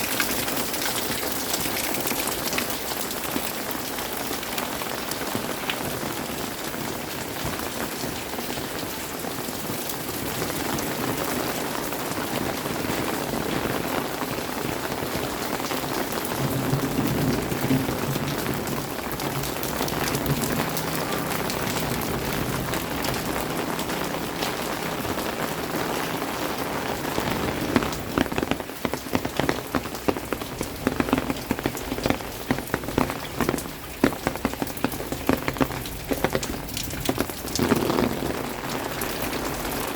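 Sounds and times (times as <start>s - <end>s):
rain falling: 0.0s - 39.9s
drops tapping a surface: 28.1s - 38.4s.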